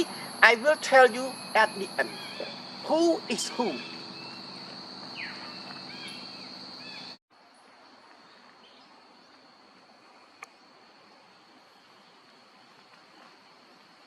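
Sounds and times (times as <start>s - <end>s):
insects droning: 0.0s - 14.0s
bird chirps: 1.3s - 7.2s.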